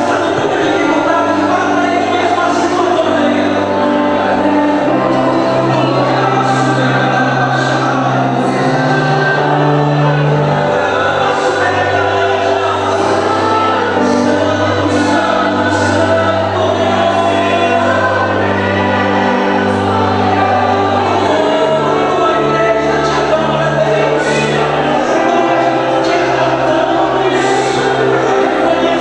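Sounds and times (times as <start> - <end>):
choir singing gospel: 0.0 - 29.0.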